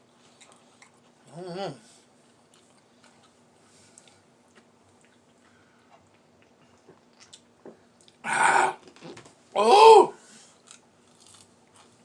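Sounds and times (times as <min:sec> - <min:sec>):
faint steady hum: 0:00.0 - 0:12.0
person chewing fried chicken: 0:00.1 - 0:01.3, 0:02.1 - 0:08.3, 0:10.5 - 0:12.0.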